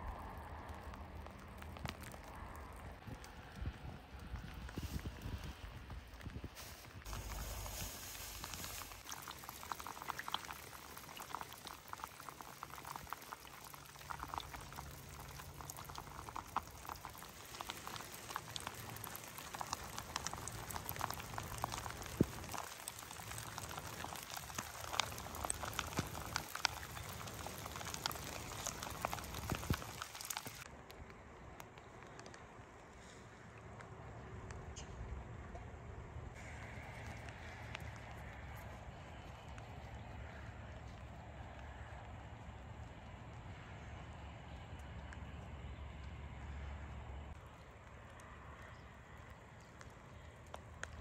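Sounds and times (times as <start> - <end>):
water bubbling and trickling: 7.0 - 30.7.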